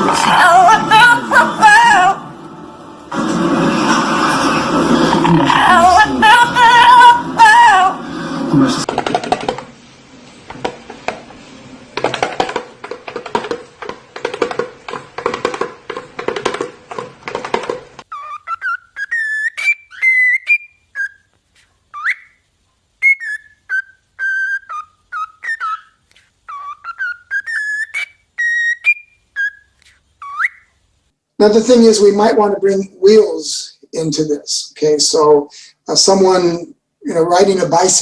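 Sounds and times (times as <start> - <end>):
pet bird whistling: 18.1 - 21.3, 21.9 - 22.4, 23.0 - 30.7.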